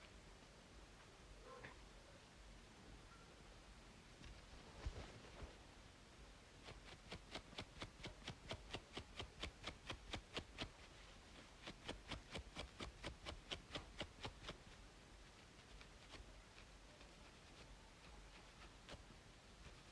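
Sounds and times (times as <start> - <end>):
white noise: 0.0 - 19.9
scratching on braided scalp: 4.3 - 5.6, 6.6 - 19.9.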